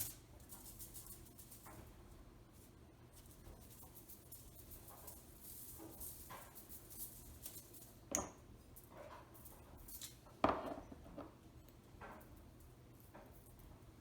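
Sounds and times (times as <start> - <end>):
faint taps and rustles: 7.4 - 13.9.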